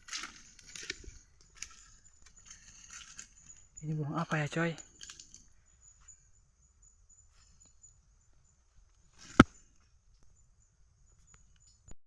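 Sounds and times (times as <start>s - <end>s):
high-pitched insect chirring: 1.5s - 8.6s.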